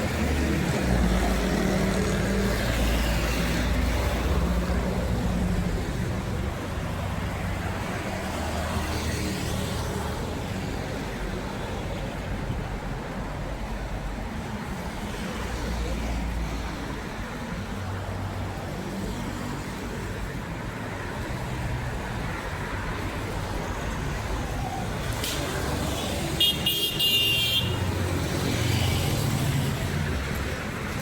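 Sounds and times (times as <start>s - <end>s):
traffic noise: 0.0s - 31.0s.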